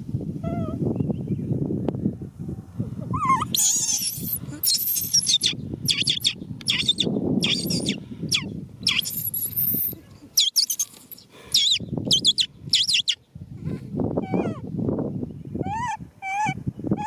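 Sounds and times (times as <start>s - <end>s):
young monkey squealing and screaming: 3.1s - 13.2s, 14.2s - 14.6s, 15.6s - 17.0s.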